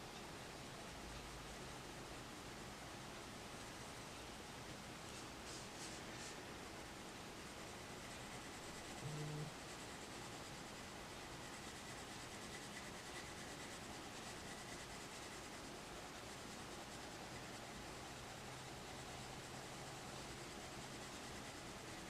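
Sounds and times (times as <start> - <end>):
pencil scratching on paper: 7.6 - 22.0.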